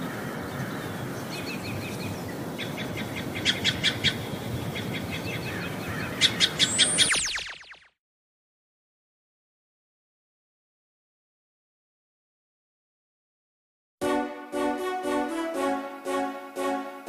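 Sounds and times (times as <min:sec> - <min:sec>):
birds chirping: 0:00.2 - 0:07.9
quick falling whistle: 0:06.7 - 0:08.0
short sharp chirps: 0:06.7 - 0:08.0.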